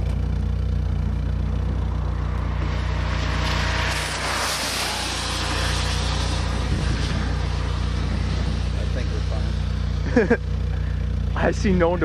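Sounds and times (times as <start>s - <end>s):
car engine humming: 0.0s - 12.0s
rushing noise: 1.4s - 10.0s.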